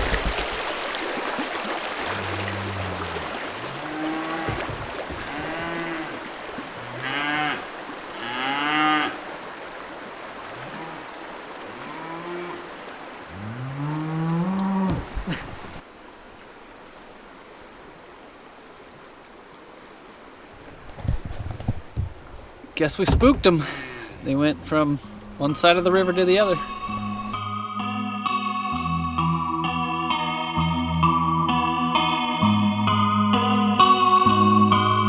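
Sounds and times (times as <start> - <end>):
cattle mooing: 2.1 - 6.2, 6.8 - 9.2, 11.7 - 12.7, 13.3 - 15.1.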